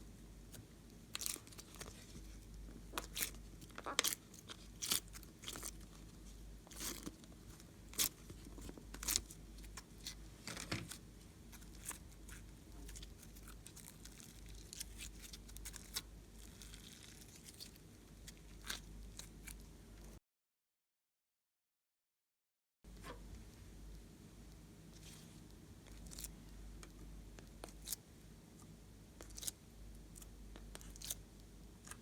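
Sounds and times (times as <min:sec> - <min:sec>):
slime crackling and popping: 0:02.8 - 0:05.8.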